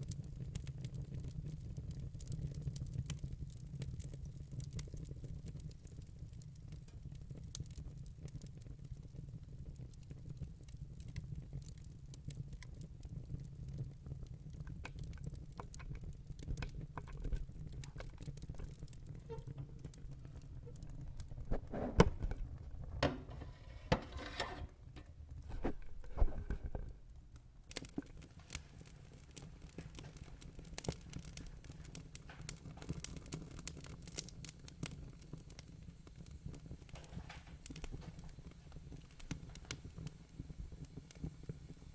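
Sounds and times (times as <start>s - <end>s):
wood fire crackling and popping: 0.0s - 41.9s
fire flames rumbling: 14.6s - 24.7s, 25.3s - 35.5s.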